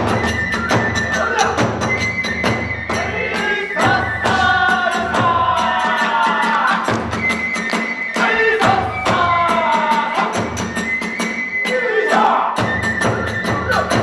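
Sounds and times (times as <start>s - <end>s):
taiko drum beating: 0.0s - 7.3s.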